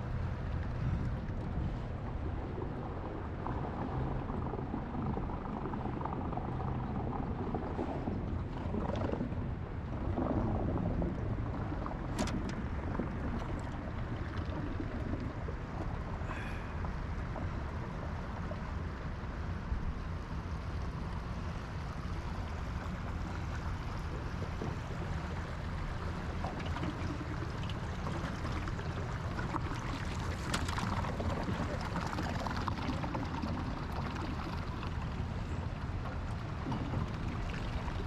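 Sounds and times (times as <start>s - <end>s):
water splashing: 23.4s - 38.0s.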